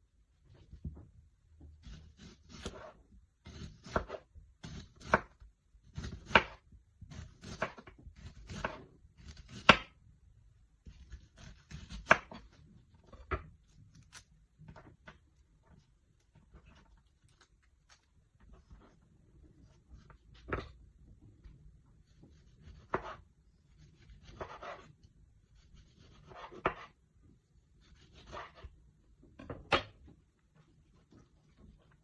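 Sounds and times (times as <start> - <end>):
knife cutting on cutting board: 1.8 - 10.0, 10.8 - 14.8, 22.1 - 25.0, 25.6 - 27.0, 27.8 - 28.7.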